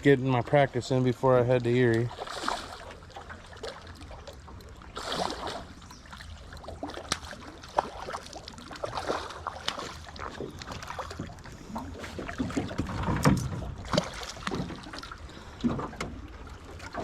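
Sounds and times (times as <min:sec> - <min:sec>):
water splashing around boat: 0:00.0 - 0:17.0.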